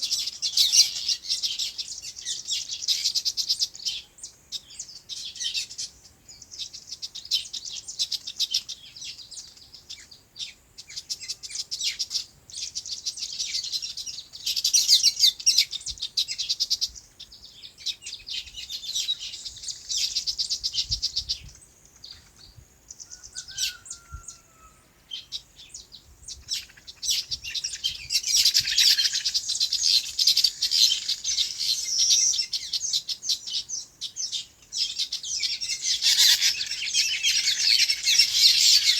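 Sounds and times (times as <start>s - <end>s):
small birds twittering: 0.0s - 38.9s.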